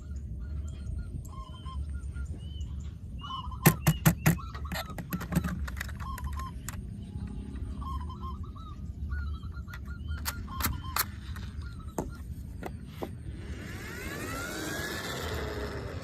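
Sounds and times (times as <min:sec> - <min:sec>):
steady low rumble: 0:00.0 - 0:03.6, 0:04.4 - 0:16.0
birds honking: 0:00.0 - 0:15.4
sharp clicks: 0:09.7 - 0:11.8.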